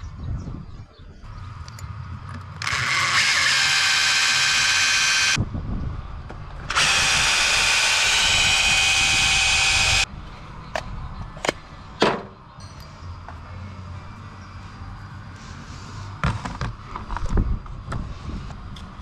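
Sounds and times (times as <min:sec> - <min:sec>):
power tool whining: 0:02.6 - 0:05.4, 0:06.6 - 0:10.1.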